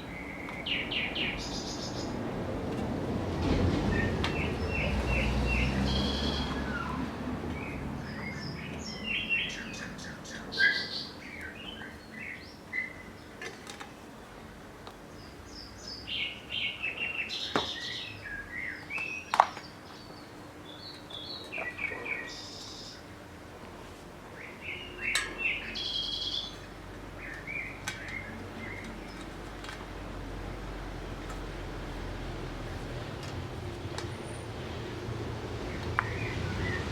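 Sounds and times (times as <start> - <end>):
small birds chirping: 0.0 - 2.2, 3.9 - 13.4, 14.2 - 23.2, 24.3 - 29.6, 35.6 - 36.9.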